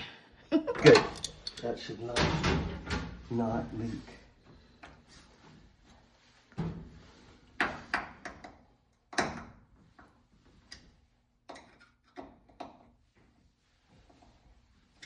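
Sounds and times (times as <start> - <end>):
knocks and clacks of tools handled: 0.8 - 3.2, 7.6 - 13.4.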